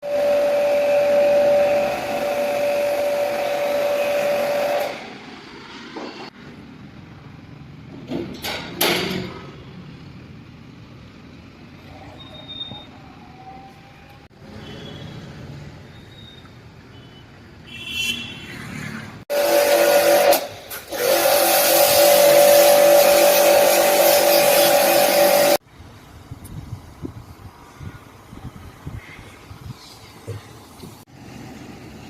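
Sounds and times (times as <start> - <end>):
machine whining with hiss: 19.3 - 25.6.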